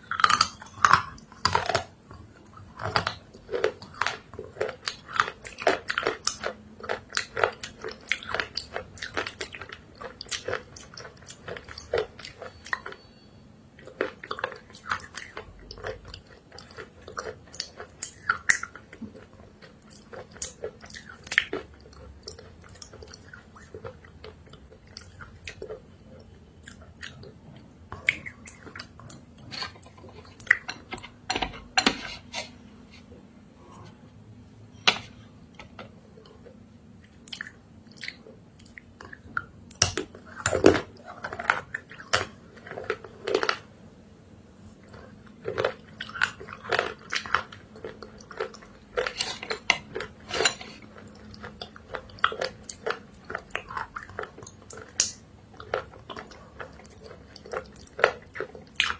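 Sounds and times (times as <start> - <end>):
crunchy bites and chewing: 0.0 - 25.8, 44.9 - 58.9.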